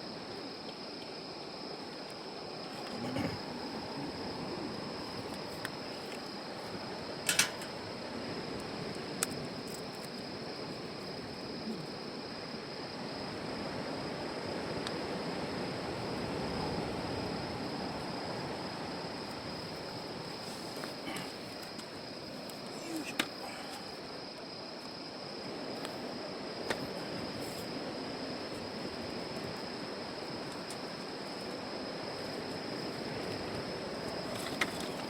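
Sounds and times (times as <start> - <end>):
campfire crackling: 1.8 - 13.5.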